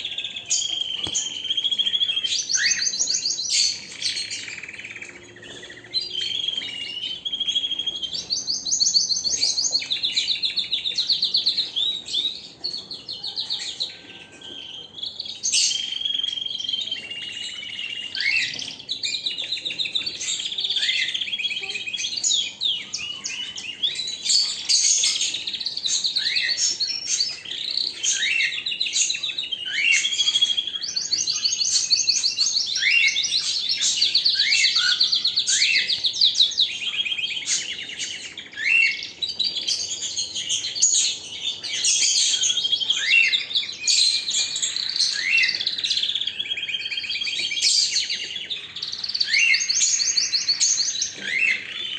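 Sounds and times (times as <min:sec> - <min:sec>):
canary singing trills: 0:00.0 - 0:51.9.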